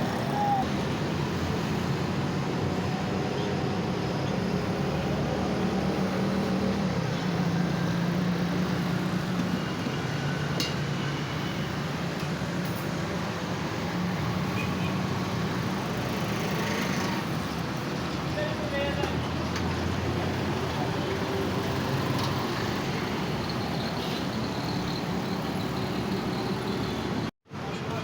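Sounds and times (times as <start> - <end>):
vehicle engines humming: 0.0 - 27.3.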